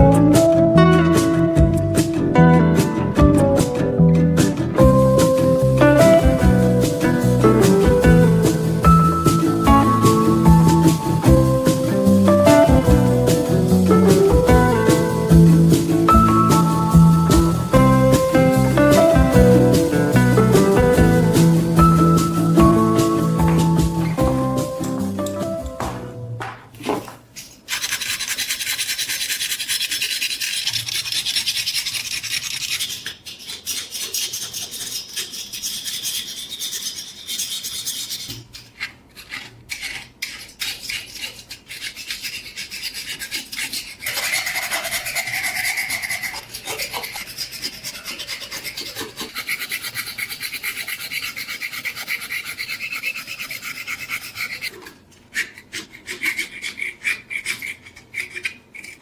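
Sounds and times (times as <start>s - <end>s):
scraping rust off metal blade: 27.4s - 59.0s.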